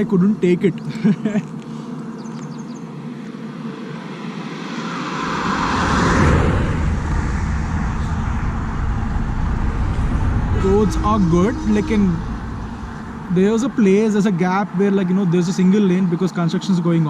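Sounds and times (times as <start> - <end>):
highway traffic rumble: 0.0 - 17.0
vehicle passing by: 2.0 - 15.4.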